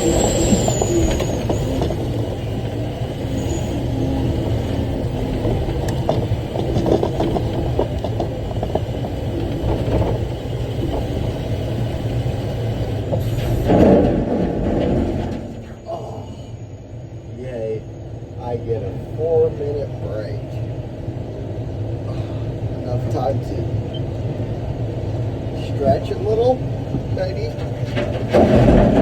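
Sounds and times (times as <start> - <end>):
truck engine droning: 0.0 - 29.0
cab rattles and knocks: 5.2 - 11.4, 13.1 - 15.8, 26.9 - 29.0.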